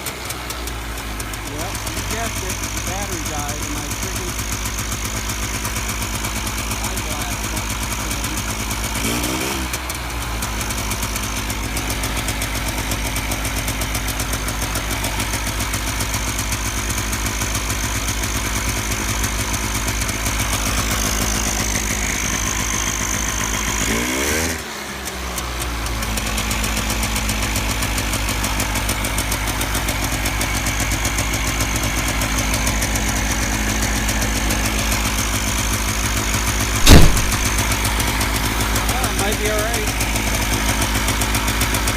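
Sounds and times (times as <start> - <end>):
two-stroke engine idling: 0.0 - 41.9.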